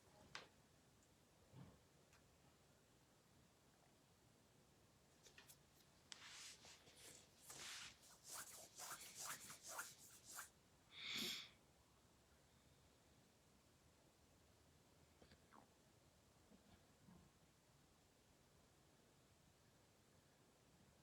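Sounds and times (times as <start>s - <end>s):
scratching and rustling: 5.2s - 10.5s
short breathy hiss: 11.0s - 11.5s.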